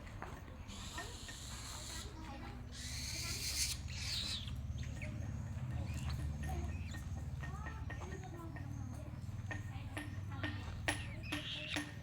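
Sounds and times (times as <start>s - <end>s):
bird of prey call: 0.7s - 7.2s, 10.9s - 12.0s.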